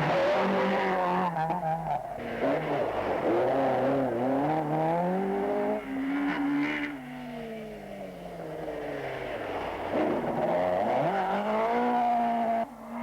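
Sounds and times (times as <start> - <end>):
rally car engine revving: 0.0 - 8.2, 9.0 - 13.0.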